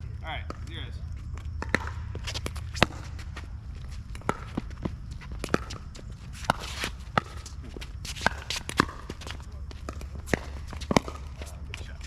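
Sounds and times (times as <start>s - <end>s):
ball bouncing on court: 0.3s - 12.0s
footsteps on wet court: 0.5s - 12.0s
paddles hitting plastic ball: 1.5s - 12.0s.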